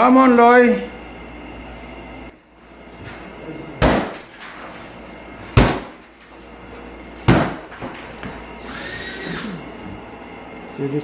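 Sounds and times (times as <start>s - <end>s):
short high squeal: 8.6s - 9.8s.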